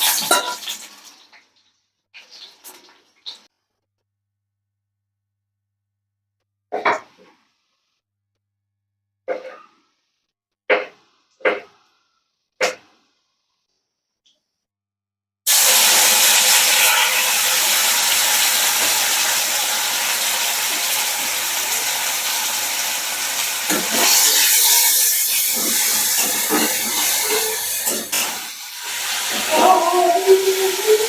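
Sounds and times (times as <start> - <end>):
cooking hiss: 0.0 - 1.3, 15.5 - 31.0.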